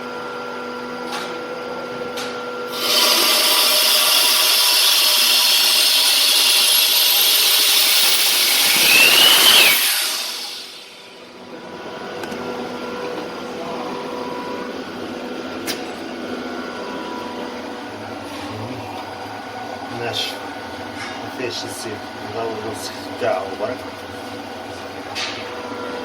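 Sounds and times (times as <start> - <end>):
turbocharger whistling hiss: 2.7 - 11.3.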